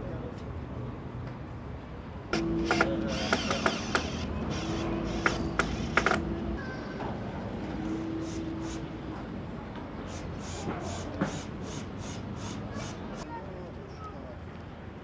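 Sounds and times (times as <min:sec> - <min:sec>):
steady hum: 0:02.3 - 0:06.6.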